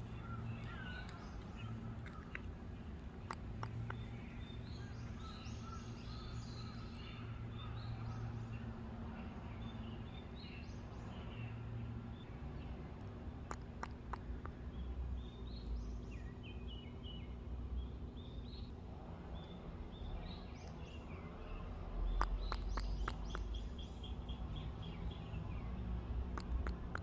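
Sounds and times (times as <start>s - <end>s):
small birds chirping: 0.0s - 27.0s
steady low rumble: 0.0s - 27.0s
sharp clicks: 0.5s - 4.5s, 22.2s - 23.6s, 26.3s - 27.0s.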